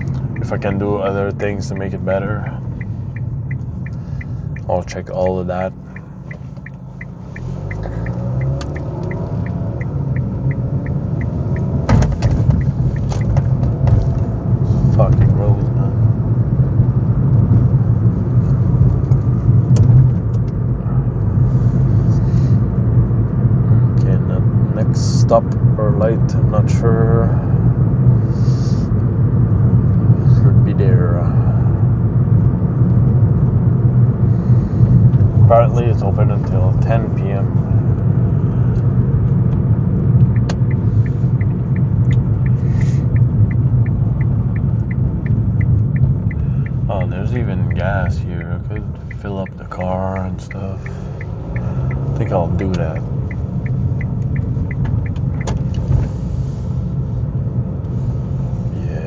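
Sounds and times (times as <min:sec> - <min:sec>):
turn signal ticking: 0:00.0 - 0:26.3, 0:31.8 - 0:58.7
car road and tyre noise: 0:00.0 - 0:59.0
faint ticks: 0:48.0 - 0:55.9.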